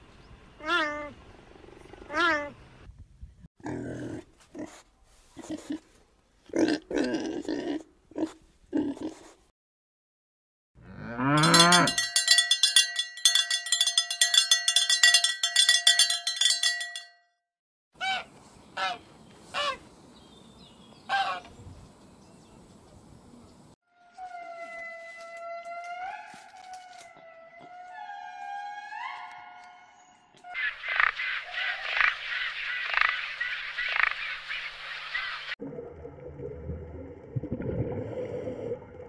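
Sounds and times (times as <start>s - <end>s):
pigs grunting: 3.6s - 4.8s, 6.5s - 9.3s
cow mooing: 10.8s - 12.0s
cowbell ringing: 11.3s - 17.3s
geese honking: 21.1s - 21.5s.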